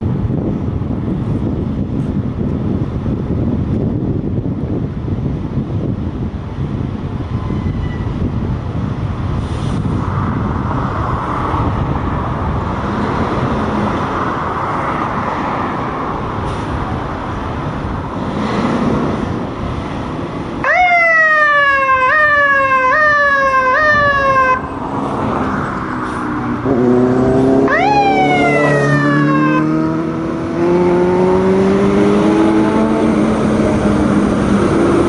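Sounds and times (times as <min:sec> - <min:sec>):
traffic: 0:00.0 - 0:35.0
wind rumble: 0:00.0 - 0:35.0
fire engine siren yelping: 0:20.6 - 0:24.8, 0:27.6 - 0:29.8.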